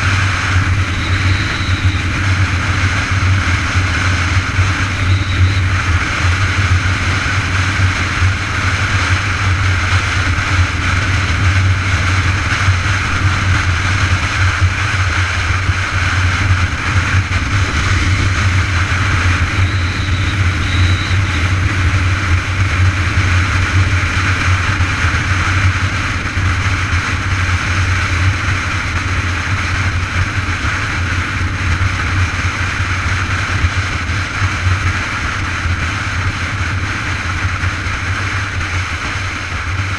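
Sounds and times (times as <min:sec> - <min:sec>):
road noise: 0:00.0 - 0:39.9
wind rumble on microphone: 0:00.0 - 0:39.9.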